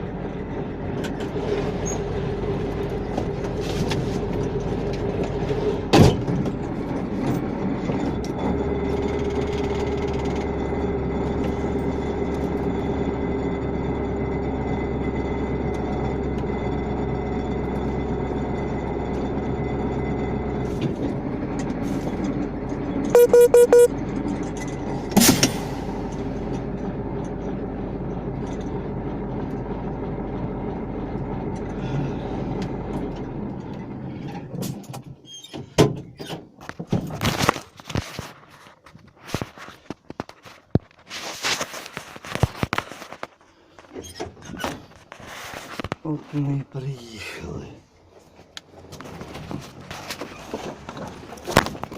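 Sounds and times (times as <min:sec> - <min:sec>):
vehicle running: 0:00.0 - 0:35.2, 0:36.6 - 0:51.9
short horn blasts: 0:23.2 - 0:23.9.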